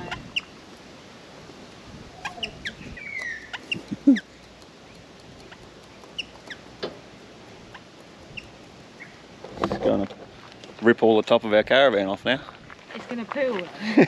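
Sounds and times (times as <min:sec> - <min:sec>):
birds chirping: 0:00.0 - 0:00.7, 0:02.1 - 0:11.4
low falling bird call: 0:02.1 - 0:04.5
falling bird whistle: 0:02.2 - 0:03.8.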